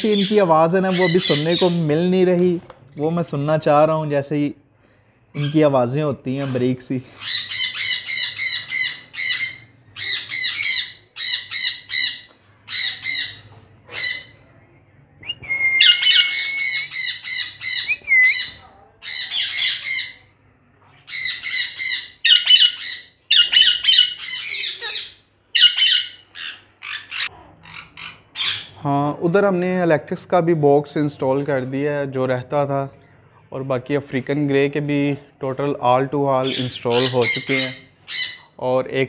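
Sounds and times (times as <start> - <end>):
parrots squawking: 0.0 - 2.0, 6.3 - 14.5, 15.8 - 20.4, 21.0 - 28.8, 36.4 - 38.6.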